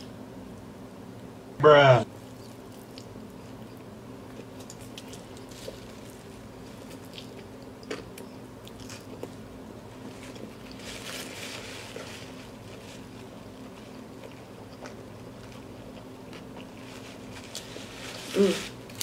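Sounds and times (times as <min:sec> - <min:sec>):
steady low hum: 0:00.0 - 0:19.0
person chewing food: 0:02.2 - 0:17.9
paper napkin rustling: 0:10.0 - 0:13.3, 0:16.8 - 0:19.0.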